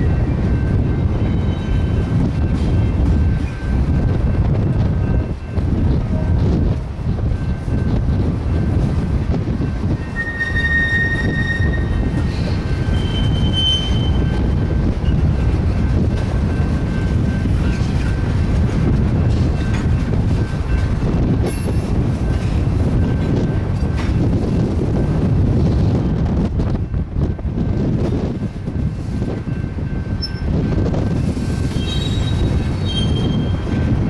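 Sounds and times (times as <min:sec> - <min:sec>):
train wheels rumbling on rail: 0:00.0 - 0:34.0
high wheel squeals: 0:10.0 - 0:14.4, 0:31.7 - 0:33.6.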